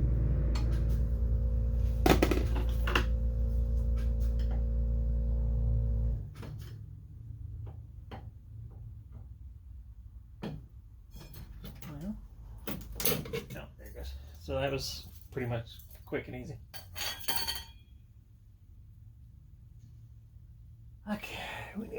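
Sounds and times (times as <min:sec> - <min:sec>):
motor humming: 0:00.0 - 0:06.2.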